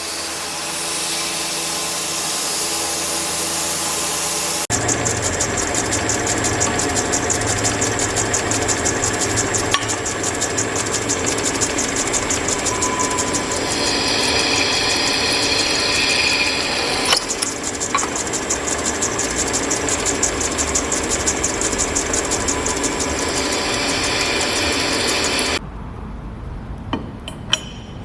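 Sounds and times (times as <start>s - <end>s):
machine mechanical chatter: 4.7s - 25.6s.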